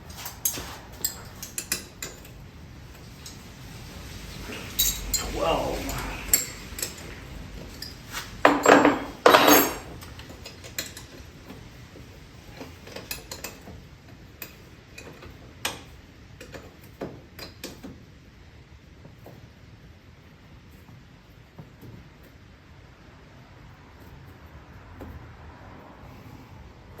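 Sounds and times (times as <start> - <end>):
wrench and tools clattering on metal: 0.1 - 2.4, 4.6 - 11.3, 12.6 - 13.8.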